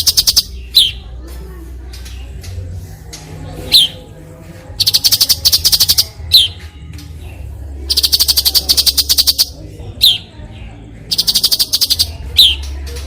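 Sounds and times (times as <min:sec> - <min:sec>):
rapid rattling bird trill: 0:00.0 - 0:01.1, 0:03.6 - 0:04.1, 0:04.8 - 0:06.6, 0:07.8 - 0:13.0
songbird singing: 0:00.0 - 0:01.2, 0:01.9 - 0:13.0.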